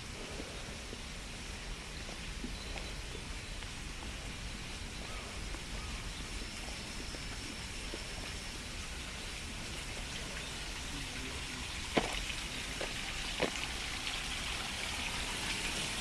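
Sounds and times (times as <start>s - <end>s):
stream water rushing: 1.1s - 16.0s.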